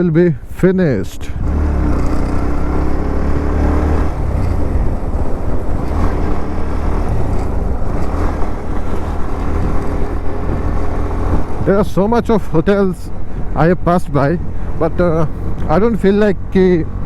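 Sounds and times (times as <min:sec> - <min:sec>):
road noise: 0:00.0 - 0:17.0
motorcycle engine running: 0:01.3 - 0:13.5.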